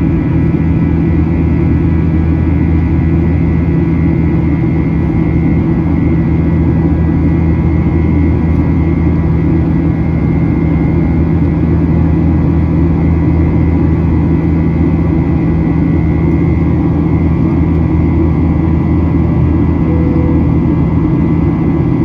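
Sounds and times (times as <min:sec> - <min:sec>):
jet engines humming in cabin: 0:00.0 - 0:22.0
short faint tone: 0:19.8 - 0:21.3.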